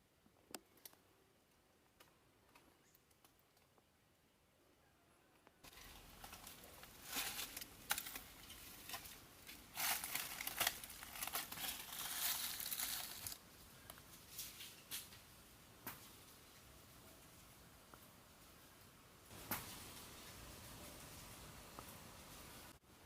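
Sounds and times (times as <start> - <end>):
rustling and crinkling: 5.6 - 18.6.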